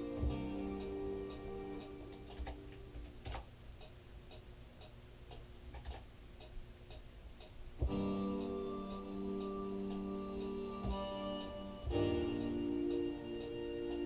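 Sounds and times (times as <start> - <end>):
melodic music loop: 0.0 - 2.9, 7.8 - 14.0
high ticking: 0.0 - 14.0.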